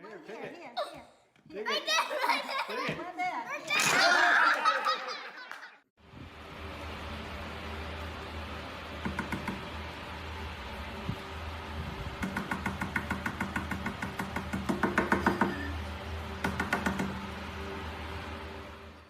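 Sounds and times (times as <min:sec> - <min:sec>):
steady low hum: 0:06.0 - 0:19.0.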